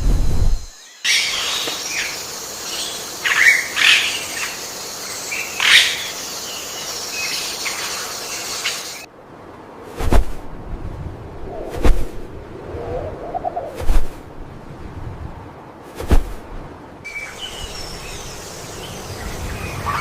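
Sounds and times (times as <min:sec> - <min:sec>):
steady outdoor hiss: 0:00.0 - 0:20.0
low thumping: 0:16.0 - 0:16.5.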